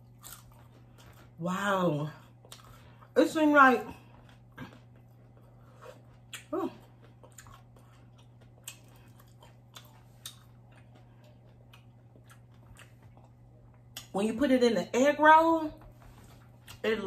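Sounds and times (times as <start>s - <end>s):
chewing mouth clicks and smacks: 4.1s - 14.1s.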